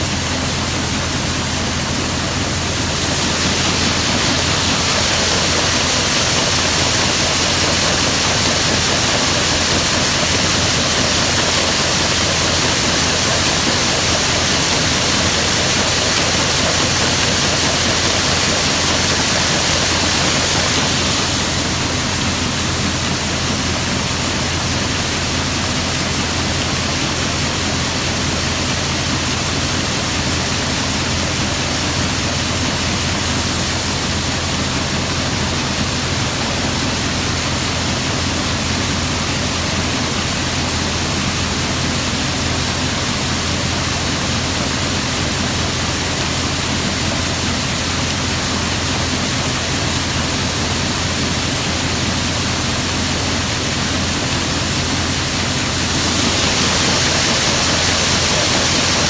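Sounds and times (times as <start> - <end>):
engine running: 0.0 - 59.0
loud rushing noise: 2.7 - 10.2, 55.5 - 59.0.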